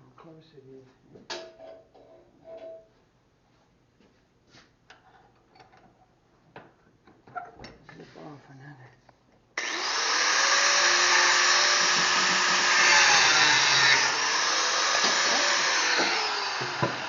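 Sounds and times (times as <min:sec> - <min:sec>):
angle grinder cutting steel pipe: 0:09.6 - 0:17.0
knock: 0:16.0 - 0:17.0.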